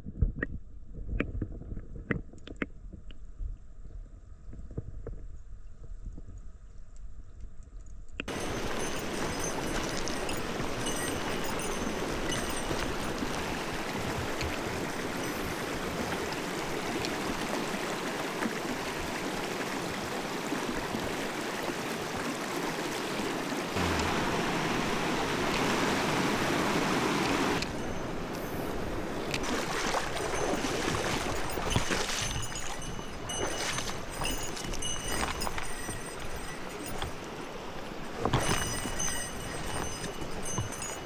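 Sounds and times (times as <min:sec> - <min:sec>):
stream water rushing over rocks: 0:08.3 - 0:41.0.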